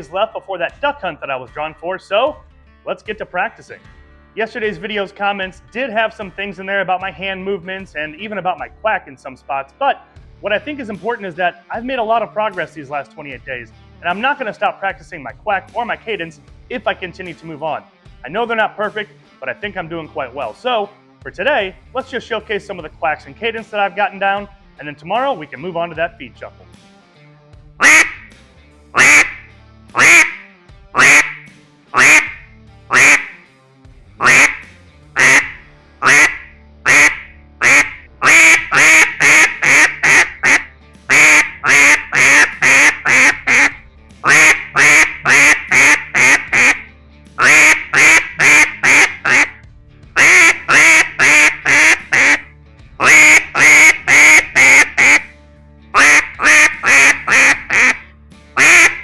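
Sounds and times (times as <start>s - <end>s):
duck call quacks: 27.8s - 28.3s, 29.0s - 33.4s, 34.2s - 49.6s, 50.2s - 55.3s, 56.0s - 59.0s.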